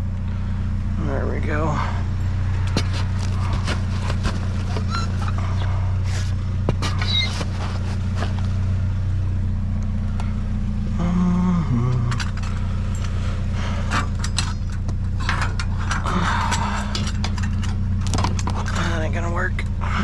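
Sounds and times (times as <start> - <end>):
vehicle engine idling: 0.0 - 20.0
scrap metal clanking: 2.6 - 8.6, 12.2 - 19.0.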